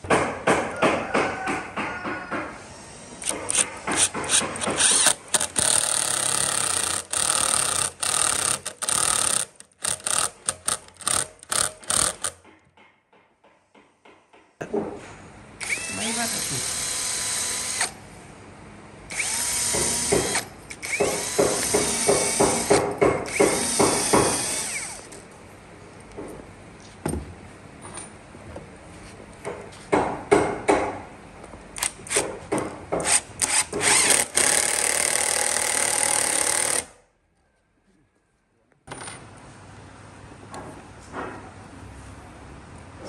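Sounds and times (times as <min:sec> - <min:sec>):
sharp knocks: 0:00.0 - 0:02.5, 0:03.3 - 0:05.5, 0:19.7 - 0:20.4, 0:21.0 - 0:24.4, 0:29.5 - 0:31.0
power tool cutting wood: 0:15.6 - 0:18.0, 0:19.1 - 0:25.1.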